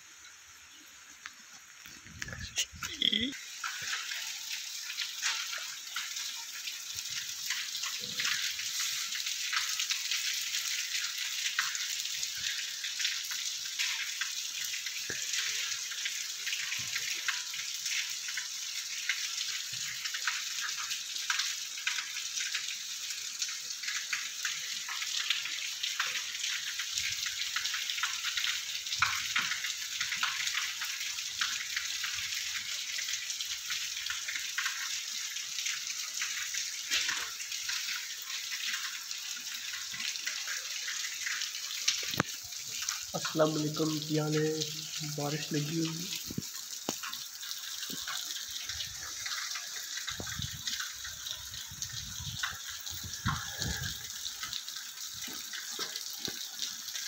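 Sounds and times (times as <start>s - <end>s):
rain falling on wet ground: 0.0s - 57.0s.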